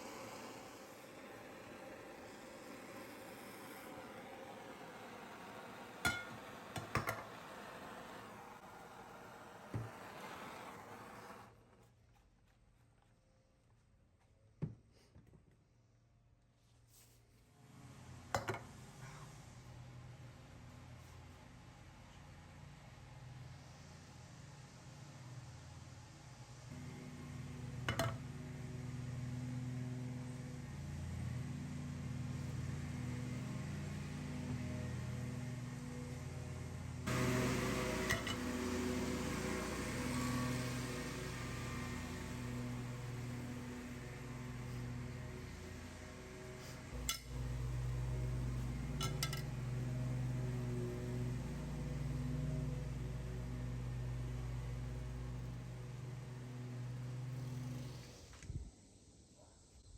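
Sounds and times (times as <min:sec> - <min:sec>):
machine humming: 0:26.7 - 0:58.2
metallic clink: 0:49.0 - 0:49.5.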